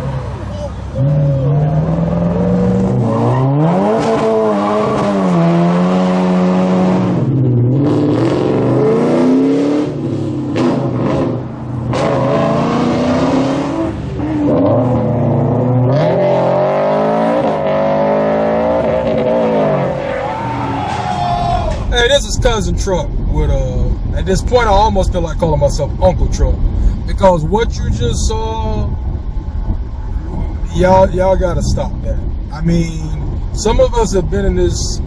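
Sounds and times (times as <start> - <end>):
car engine revving hard: 0.9 - 20.1.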